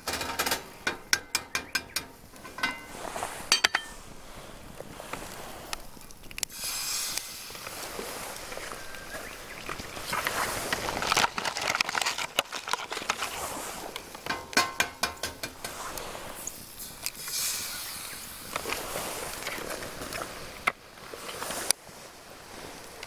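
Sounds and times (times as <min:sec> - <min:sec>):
pan sizzling: 0:00.0 - 0:04.0, 0:14.0 - 0:17.0.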